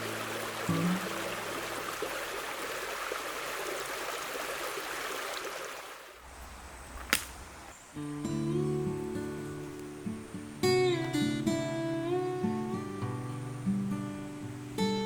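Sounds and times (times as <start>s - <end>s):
river water flowing: 0.0s - 15.0s
sharp click: 7.0s - 7.4s.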